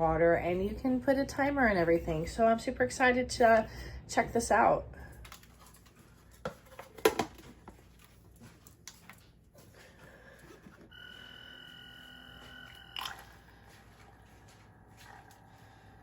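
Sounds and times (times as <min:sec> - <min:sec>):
faint high whine: 0:10.9 - 0:16.0.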